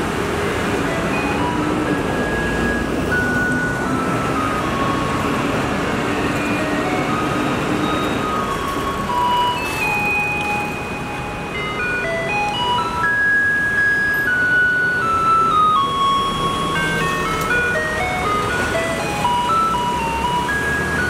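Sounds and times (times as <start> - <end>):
steady background noise: 0.0 - 21.0.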